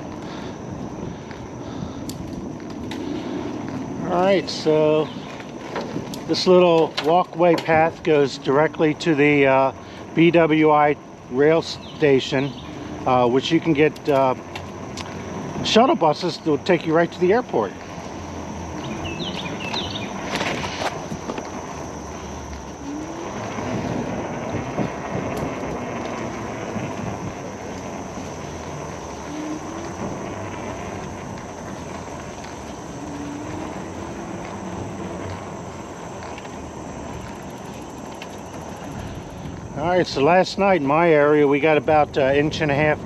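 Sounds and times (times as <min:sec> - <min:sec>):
bicycle tyres rolling on pavement: 0:00.0 - 0:43.0
wind on microphone: 0:18.7 - 0:36.0.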